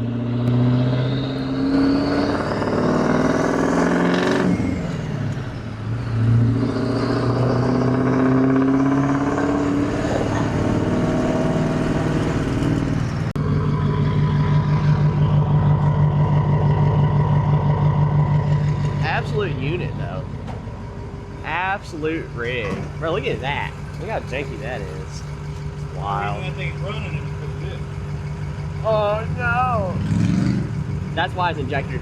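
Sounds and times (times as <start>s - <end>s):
diesel engine revving: 0.0s - 32.0s
turbo whine: 6.8s - 32.0s.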